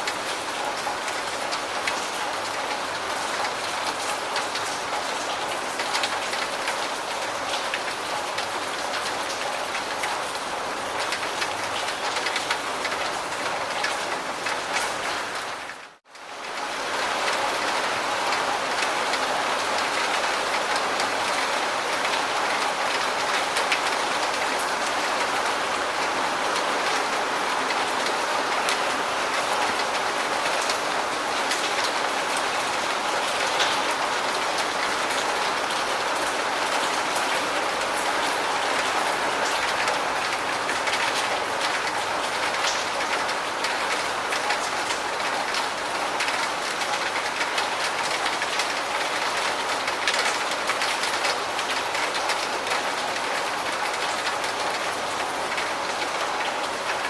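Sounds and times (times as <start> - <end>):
raindrops ticking on a surface: 0.0 - 57.0
steady rain falling: 0.0 - 57.0.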